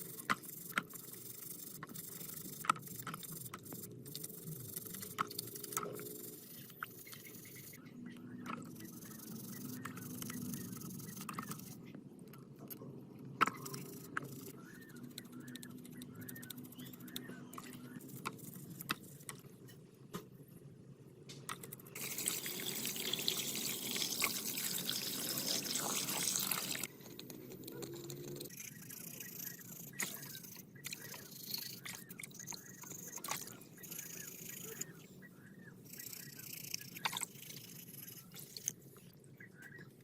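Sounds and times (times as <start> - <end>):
faint clicks and scrapes: 0.0 - 20.6, 21.3 - 40.0
running water hiss: 22.0 - 26.9.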